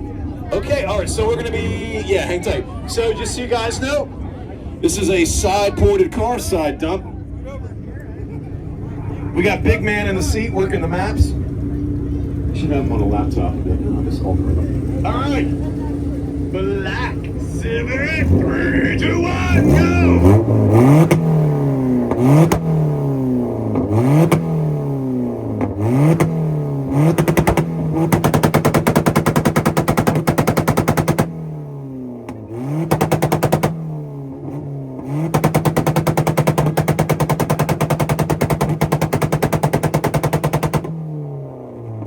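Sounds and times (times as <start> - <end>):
car engine revving: 0.0 - 42.0
engine popping on launch limiter: 8.6 - 42.0.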